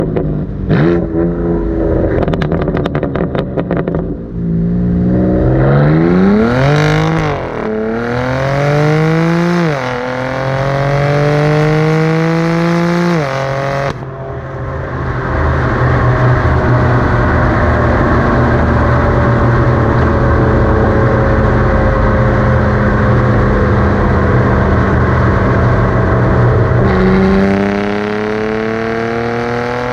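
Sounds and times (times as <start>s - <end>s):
car exhaust crackle: 0.0s - 8.7s
car engine accelerating: 0.0s - 29.9s
road and wind noise: 0.0s - 29.9s.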